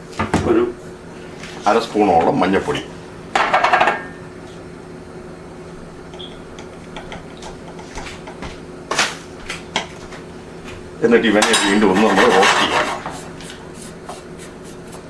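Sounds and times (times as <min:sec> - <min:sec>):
low steady hum: 0:10.3 - 0:15.0
spoon clattering against pan: 0:11.4 - 0:12.8.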